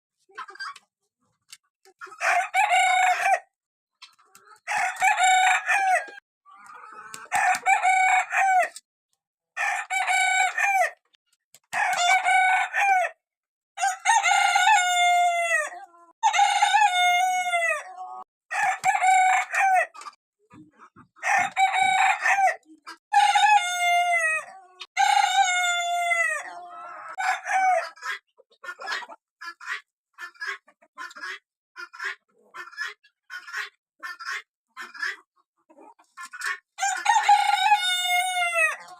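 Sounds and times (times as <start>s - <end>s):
roosters crowing: 2.2s - 3.5s, 4.6s - 6.2s, 7.2s - 8.8s, 9.6s - 11.0s, 11.7s - 13.2s, 13.8s - 17.9s, 18.5s - 20.0s, 21.2s - 28.0s, 36.8s - 38.9s.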